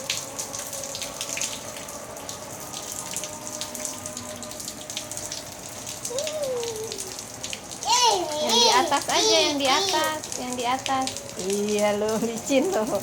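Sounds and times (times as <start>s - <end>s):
rainwater pouring and splashing: 0.0s - 13.0s.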